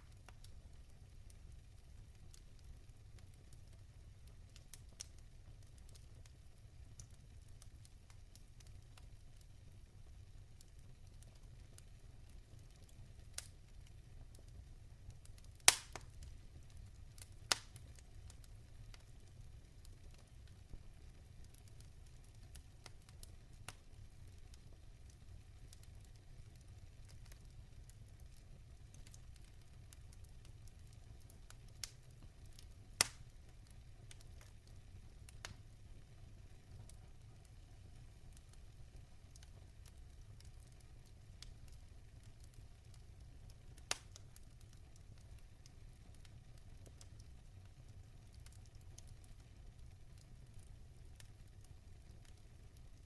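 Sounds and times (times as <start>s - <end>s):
fire crackling in fireplace: 0.0s - 53.0s
low rumble of flames: 0.0s - 53.0s
sharp fire pops: 15.6s - 16.2s, 17.2s - 17.8s, 33.0s - 33.3s, 43.8s - 44.2s.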